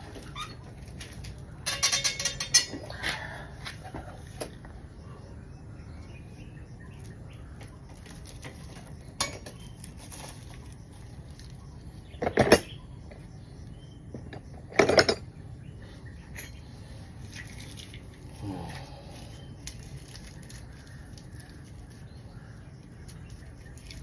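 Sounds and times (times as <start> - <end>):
metal tools clinking: 0.2 - 3.0, 14.2 - 15.3, 16.2 - 16.8
metal clattering: 1.1 - 2.8.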